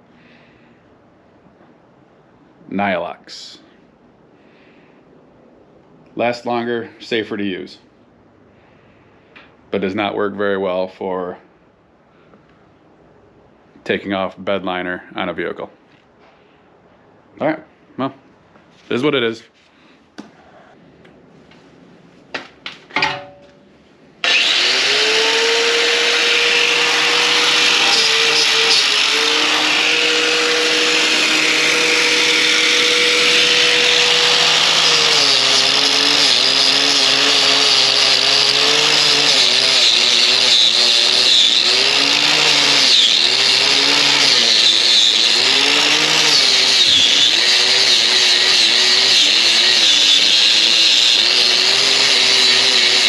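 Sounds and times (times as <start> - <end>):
angle grinder with wire wheel: 24.2 - 53.0.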